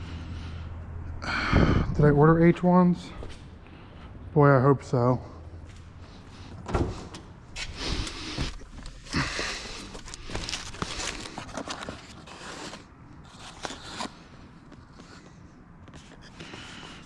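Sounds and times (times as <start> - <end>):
plastic parts rustling and clicking: 9.7 - 12.4.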